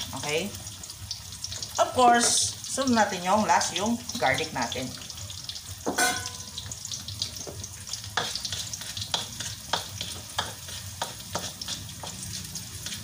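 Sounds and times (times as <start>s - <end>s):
aromatics sizzling in oil in a wok: 0.0s - 13.0s
spatula scraping and knocking on pan: 5.8s - 6.4s, 7.4s - 13.0s.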